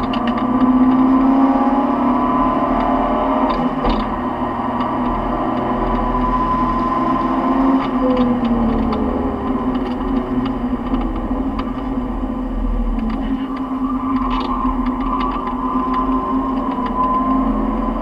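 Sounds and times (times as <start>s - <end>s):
car engine revving high: 0.0s - 10.1s.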